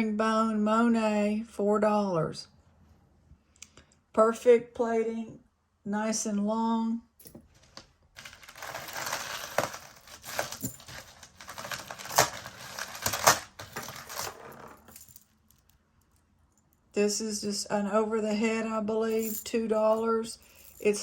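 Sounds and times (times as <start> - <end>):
metal jewelry clinking: 7.2 - 7.5, 8.2 - 16.9, 19.1 - 21.0.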